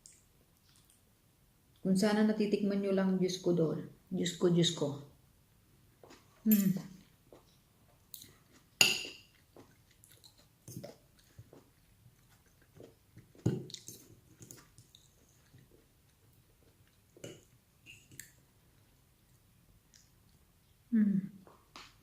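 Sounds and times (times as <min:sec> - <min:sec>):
person chewing food: 0:07.0 - 0:20.8.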